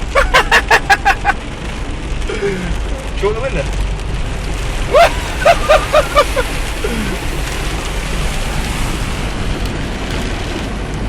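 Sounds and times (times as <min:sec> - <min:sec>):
low rumble: 0:03.6 - 0:11.0
floodwater splashing: 0:03.8 - 0:10.9
short vocal bursts: 0:04.5 - 0:09.3.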